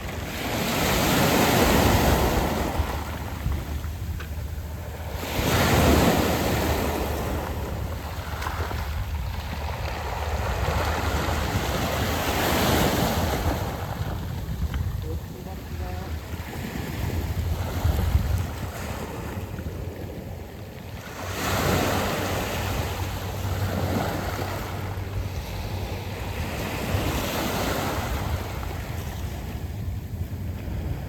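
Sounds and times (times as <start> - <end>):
waves washing over pebbles: 0.0 - 20.0
wind rumble on microphone: 0.0 - 31.0.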